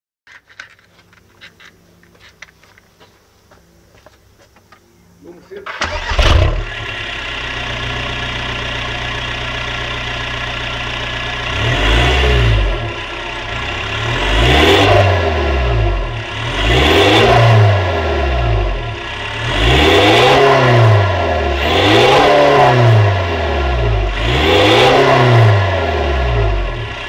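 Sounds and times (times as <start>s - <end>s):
diesel car engine idling and revving: 5.7s - 27.0s.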